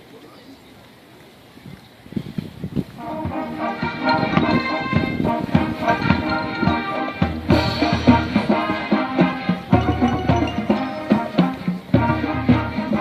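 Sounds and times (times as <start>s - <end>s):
drumline hits: 3.0s - 13.0s
low brass: 3.0s - 13.0s
marching band horns: 3.0s - 13.0s.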